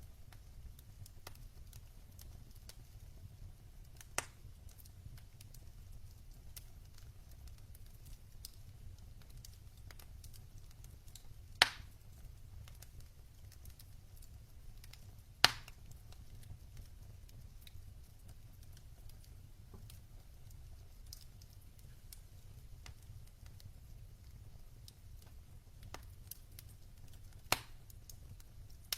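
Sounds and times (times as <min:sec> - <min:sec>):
wood fire crackling: 0:00.0 - 0:28.9
loud sharp pops: 0:15.4 - 0:15.7, 0:27.5 - 0:27.8.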